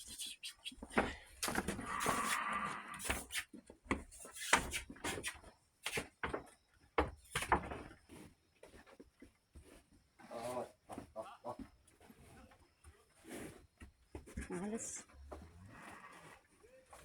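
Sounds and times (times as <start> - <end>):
knocks and clatters on wood: 5.9 - 8.0.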